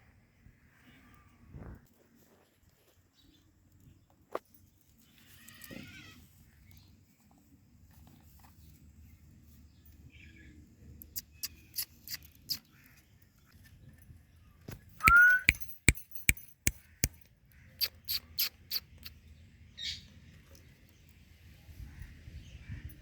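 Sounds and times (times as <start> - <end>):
parrot clicking: 15.0 - 15.6
parrot rising whistle: 15.0 - 15.6.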